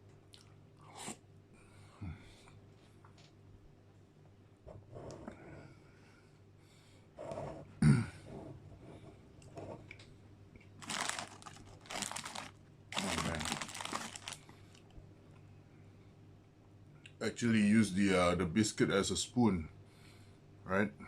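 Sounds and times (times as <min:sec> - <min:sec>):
biscuit crunching being chewed: 0:10.6 - 0:14.9.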